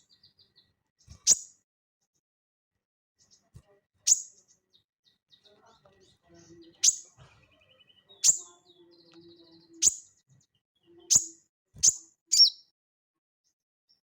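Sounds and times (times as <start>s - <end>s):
soft rapid bird twitter: 0.0s - 1.6s, 4.1s - 12.7s.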